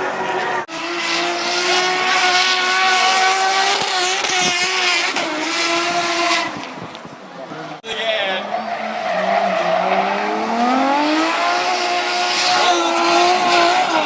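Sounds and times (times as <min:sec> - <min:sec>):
car engine at high revs: 0:00.0 - 0:14.0
tyres squealing: 0:12.5 - 0:14.0.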